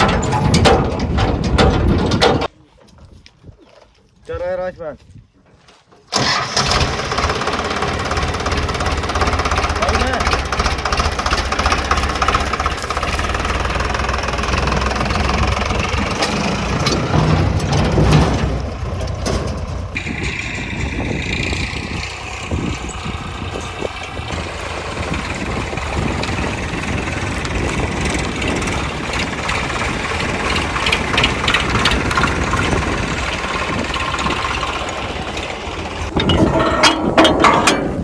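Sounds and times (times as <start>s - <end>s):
tractor diesel engine knocking: 0.0s - 2.5s, 6.1s - 38.0s.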